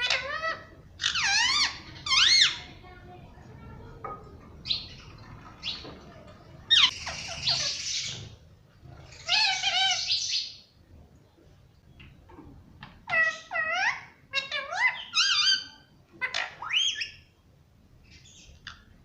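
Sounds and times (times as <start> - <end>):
parakeet chirping and screeching: 0.0 - 2.9, 4.6 - 10.7, 13.0 - 17.2.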